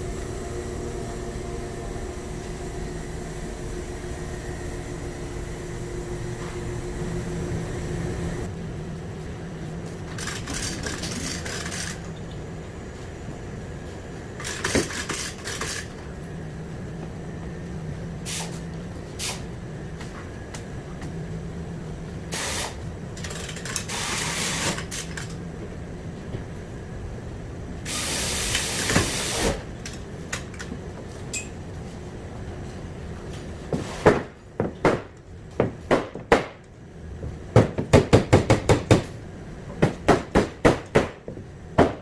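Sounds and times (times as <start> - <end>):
low shop hum: 0.0 - 42.0
compressed air hissing: 18.2 - 19.5, 22.3 - 22.8, 23.8 - 24.8, 27.9 - 29.7.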